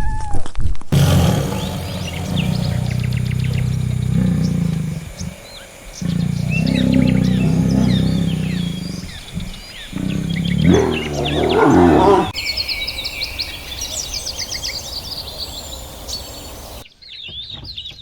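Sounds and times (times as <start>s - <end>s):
big cat growling: 1.0s - 12.4s
small birds chirping: 1.0s - 18.0s.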